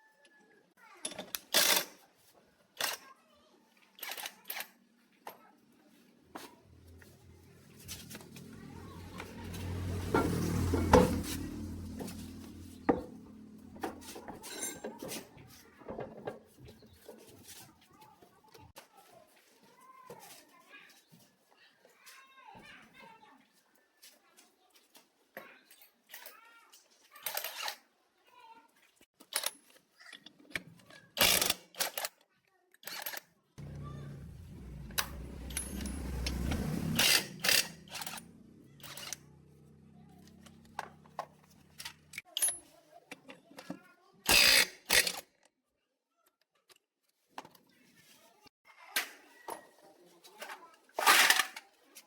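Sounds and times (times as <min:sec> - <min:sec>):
low mechanical hum: 0:33.6 - 0:40.8.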